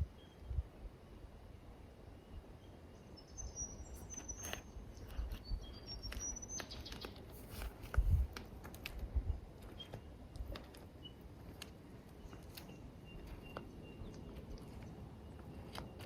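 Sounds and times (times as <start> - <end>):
small bird whistling calls: 2.6 - 7.2.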